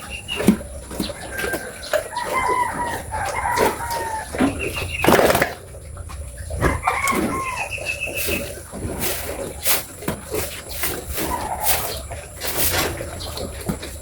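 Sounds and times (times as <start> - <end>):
rooster crowing: 1.2 - 5.0, 6.6 - 8.0.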